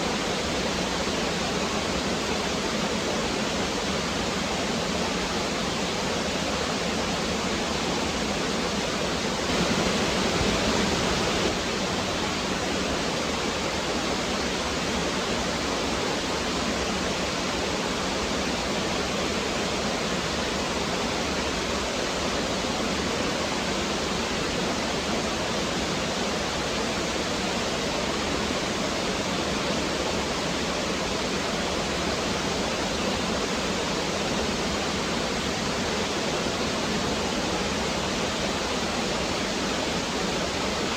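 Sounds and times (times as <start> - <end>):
stream water rushing: 9.4 - 16.8.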